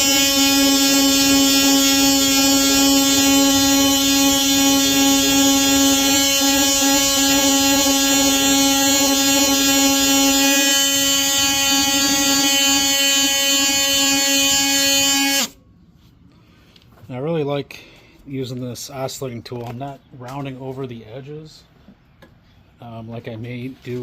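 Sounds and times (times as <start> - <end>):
oscillating multi-tool sanding wood: 0.0 - 15.5.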